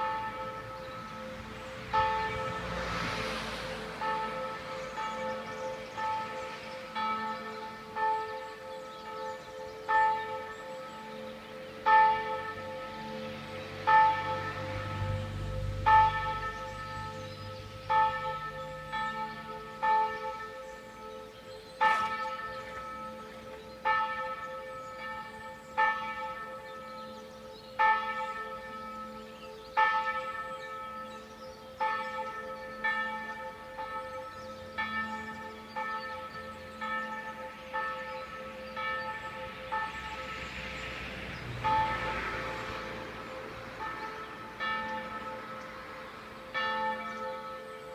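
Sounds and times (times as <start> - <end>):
church bells tolling: 0.0 - 47.9.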